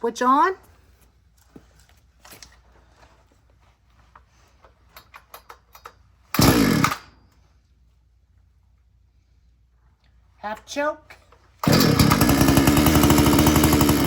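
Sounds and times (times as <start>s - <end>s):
chainsaw recoil starter pull: 5.0s - 7.1s, 11.6s - 14.0s
engine turning over: 6.3s - 7.1s, 11.6s - 14.0s.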